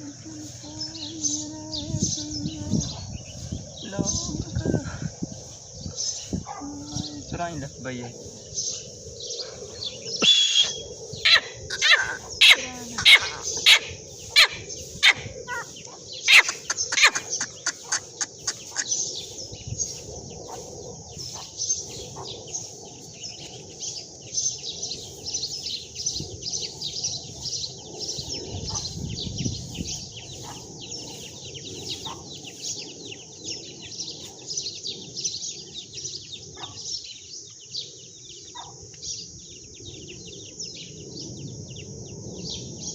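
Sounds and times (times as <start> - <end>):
high-pitched bird chirping: 0.0 - 4.8, 5.4 - 36.9
francolin calling: 8.2 - 34.8.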